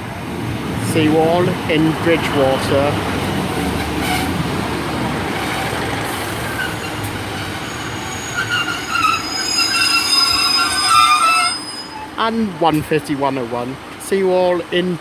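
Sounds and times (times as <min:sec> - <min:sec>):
train rumbling: 0:00.0 - 0:14.0
train brakes squealing: 0:05.4 - 0:12.6.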